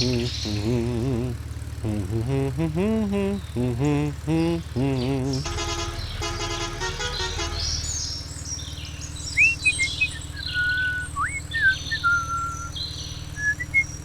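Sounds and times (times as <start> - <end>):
birds chirping and whistling: 0.0 - 0.7, 5.0 - 14.0
steady low hum: 0.0 - 14.0.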